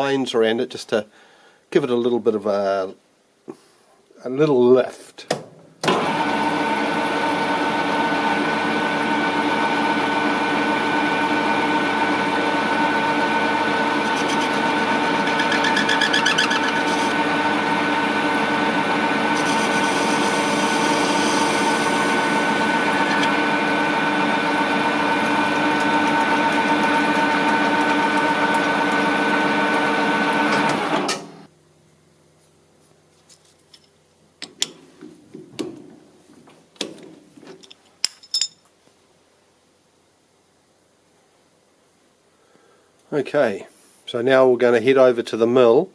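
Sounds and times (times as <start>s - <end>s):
metal lathe whining: 5.9s - 31.4s.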